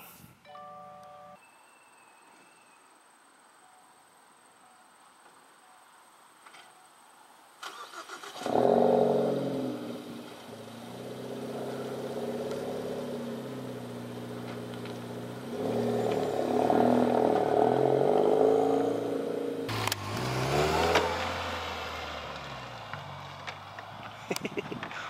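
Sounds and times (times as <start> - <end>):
car engine revving pulling away: 7.6 - 24.3
car engine idling: 9.5 - 24.4.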